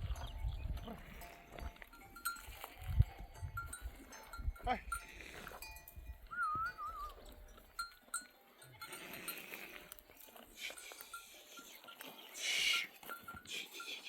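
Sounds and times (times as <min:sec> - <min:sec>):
animal bells tinkling: 0:00.0 - 0:14.0
sheep and goats bleating: 0:00.0 - 0:14.0
warbling whistle-like call: 0:06.3 - 0:07.2.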